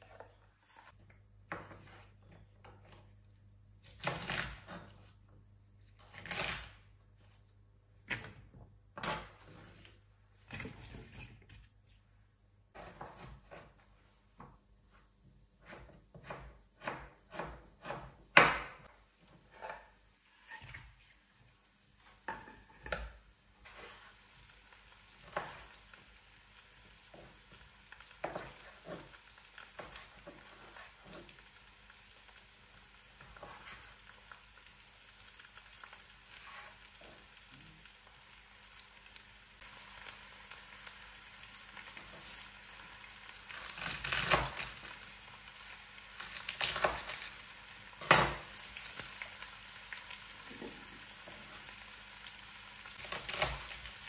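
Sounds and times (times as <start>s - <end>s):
food sizzling in a frying pan: 21.2s - 54.0s.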